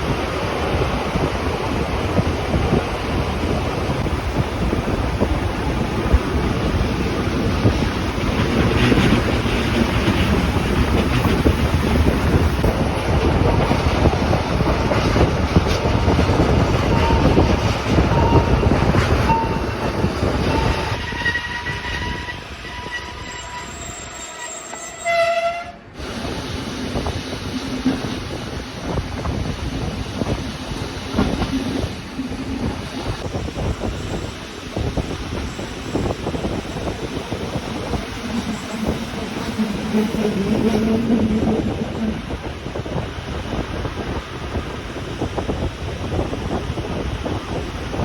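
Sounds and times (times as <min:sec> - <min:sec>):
train wheels rumbling on rail: 0:00.0 - 0:48.0
train horn blast: 0:18.1 - 0:26.0
wheel squeal: 0:20.4 - 0:25.6.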